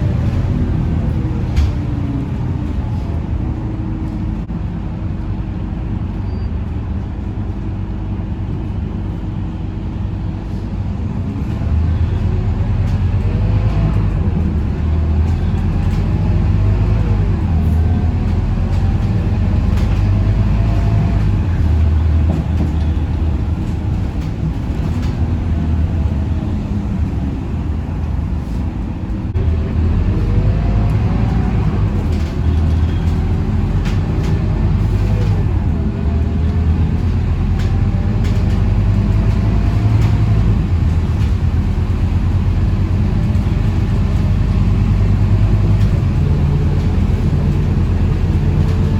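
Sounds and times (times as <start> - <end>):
bus engine and road rumble: 0.0 - 48.9.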